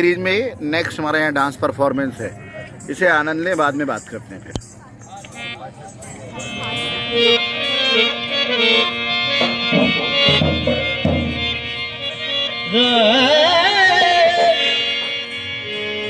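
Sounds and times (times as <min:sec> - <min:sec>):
harmonium chords: 0:05.2 - 0:16.0.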